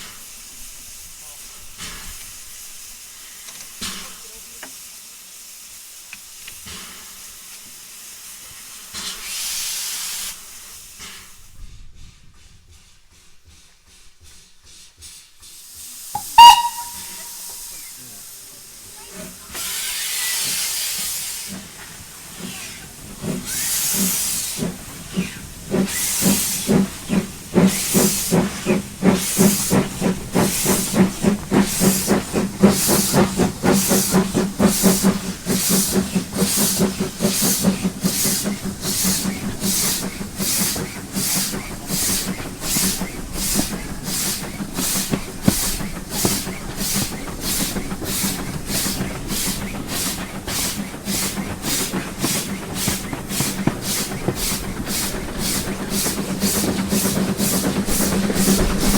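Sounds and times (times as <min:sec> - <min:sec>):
steam hissing: 0:00.0 - 0:58.9
locomotive exhaust chuffs: 0:09.4 - 0:18.3, 0:19.6 - 0:58.9
steam locomotive whistle: 0:16.2 - 0:17.9.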